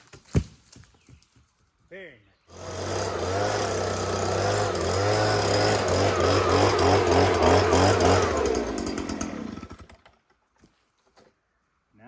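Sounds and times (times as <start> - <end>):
chainsaw cutting log: 2.5 - 10.4.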